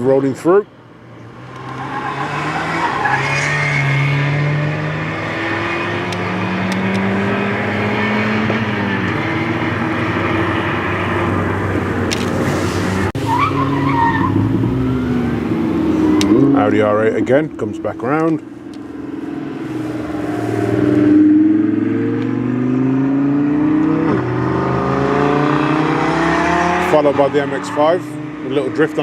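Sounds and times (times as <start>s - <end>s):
car engines accelerating: 0.0s - 29.0s
tyre squeal: 1.6s - 4.3s, 12.4s - 15.4s.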